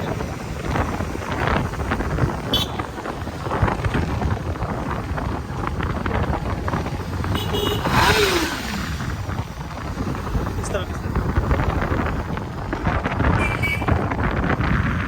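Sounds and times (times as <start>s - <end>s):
vehicle road and wind noise: 0.0s - 15.0s
short horn toot: 13.4s - 14.0s.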